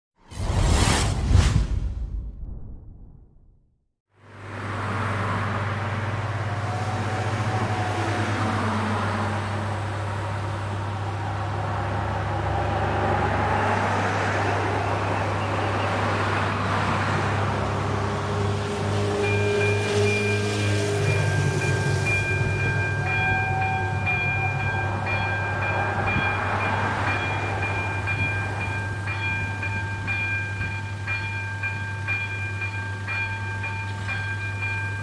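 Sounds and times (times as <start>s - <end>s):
traffic noise: 4.1s - 35.0s
vehicle engine humming: 4.2s - 29.0s.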